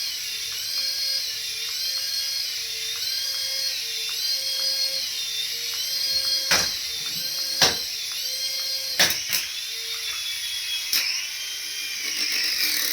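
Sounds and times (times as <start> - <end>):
small toy motor whining: 0.0 - 12.9.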